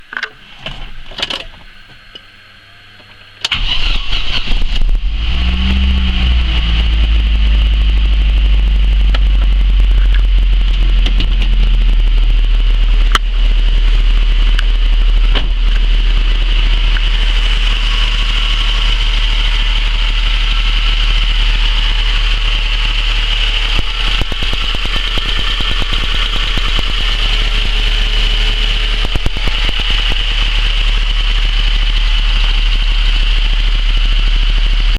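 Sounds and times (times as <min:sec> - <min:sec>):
car engine starting and idling: 0:03.0 - 0:34.9
engine lifters tapping: 0:14.5 - 0:32.3.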